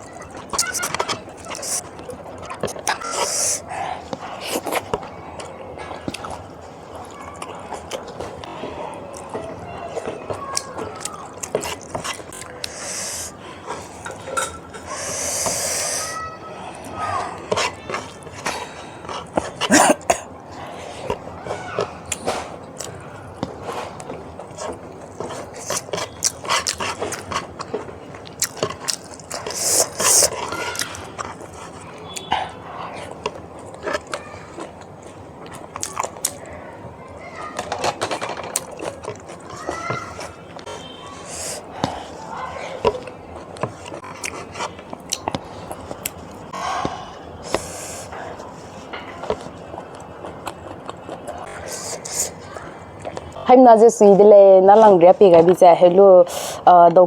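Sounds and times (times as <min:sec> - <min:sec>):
chewing and biting: 0:00.0 - 0:15.9, 0:16.8 - 0:36.6, 0:37.4 - 0:53.4
wet mouth clicks: 0:00.5 - 0:03.7.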